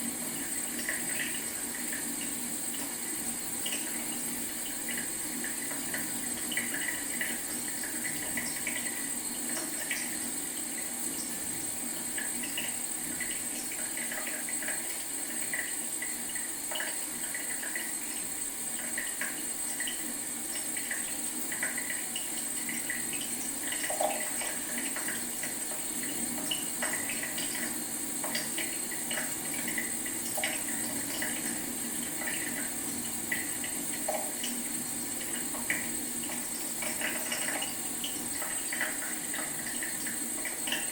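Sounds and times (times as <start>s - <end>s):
faucet trickling into sink: 0.2s - 40.9s.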